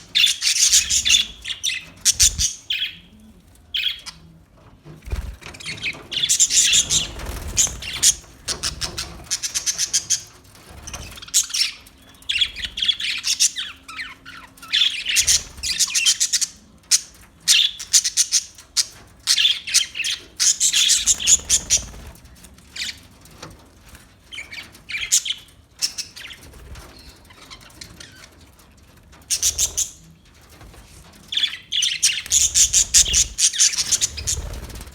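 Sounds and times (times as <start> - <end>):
budgerigars chirping: 0.0 - 3.1, 3.8 - 4.2, 5.6 - 10.3, 11.0 - 22.0, 29.3 - 30.0, 31.3 - 34.9.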